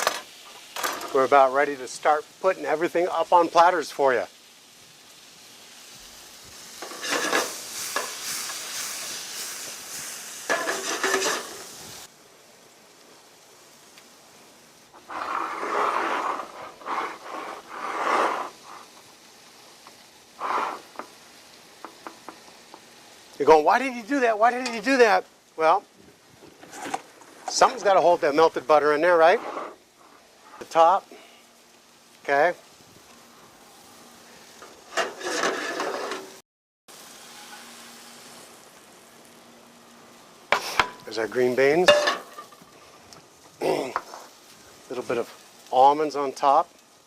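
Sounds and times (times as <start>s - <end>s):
skillet sizzling: 0.0s - 47.0s
scraping rubbing noise: 15.0s - 19.0s, 20.4s - 21.0s, 29.2s - 30.7s, 34.9s - 36.4s.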